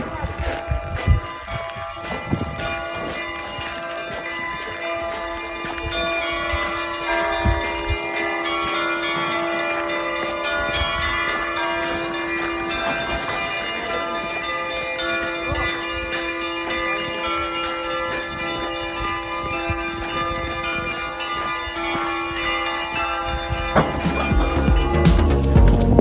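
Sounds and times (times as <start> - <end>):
church bells ringing in a peal: 0.0 - 25.5
deep bell tone: 0.0 - 26.0.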